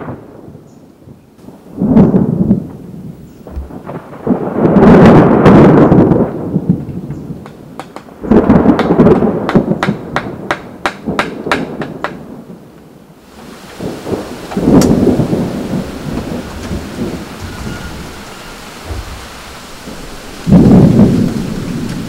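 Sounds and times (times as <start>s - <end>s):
rain: 0.0s - 22.0s
thunder rumbling: 0.0s - 22.0s
sharp thunder cracks: 1.4s - 7.4s, 8.1s - 12.6s, 13.2s - 22.0s.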